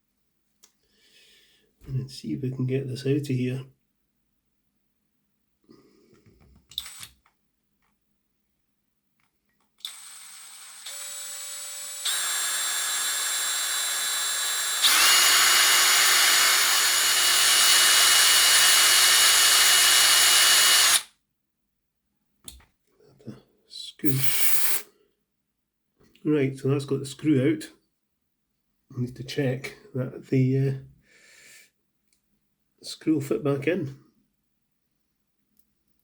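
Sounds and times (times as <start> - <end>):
electric drill running: 6.8 - 7.1, 9.8 - 21.1, 24.2 - 24.8.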